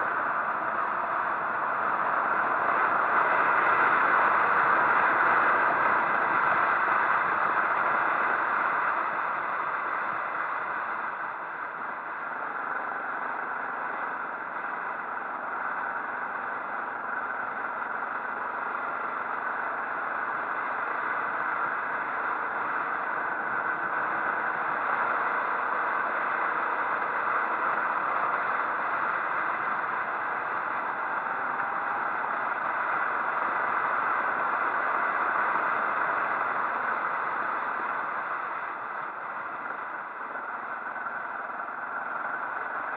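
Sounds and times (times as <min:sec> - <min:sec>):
road noise: 0:00.0 - 0:42.9.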